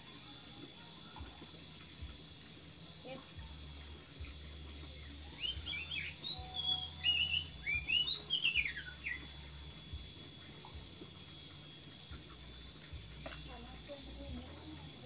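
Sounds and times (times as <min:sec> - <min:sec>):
songbird singing: 0:03.0 - 0:15.0.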